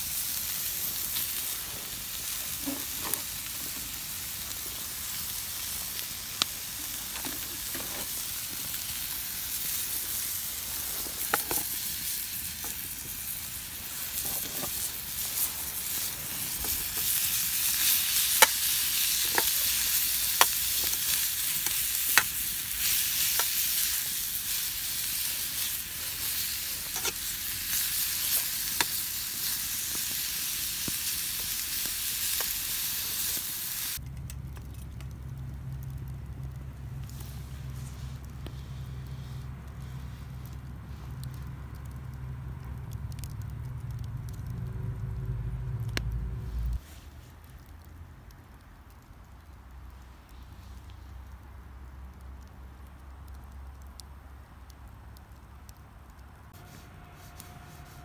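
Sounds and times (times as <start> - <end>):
food sizzling in a pan: 0.0 - 34.0
campfire popping: 0.0 - 58.0.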